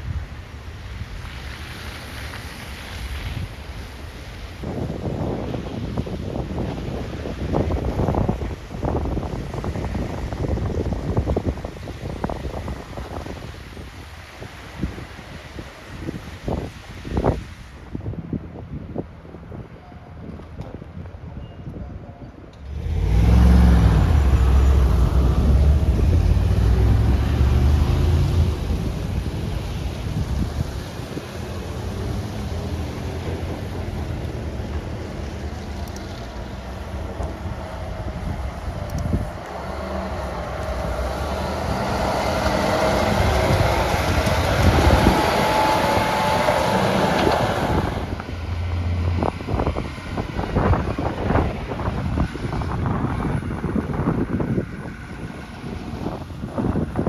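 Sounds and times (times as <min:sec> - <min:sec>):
motor vehicle driving past: 0:22.6 - 0:53.7.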